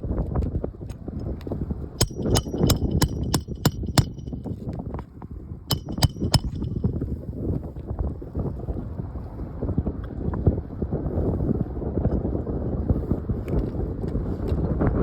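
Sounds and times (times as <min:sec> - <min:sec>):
wind rumbling on microphone: 0:00.0 - 0:15.0
hammer striking roofing nails: 0:02.0 - 0:04.4, 0:05.7 - 0:06.8.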